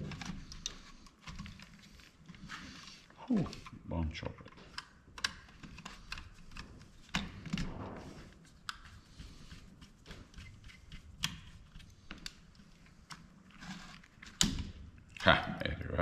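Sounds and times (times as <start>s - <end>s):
tools and plastic parts clicking: 4.4s - 7.7s.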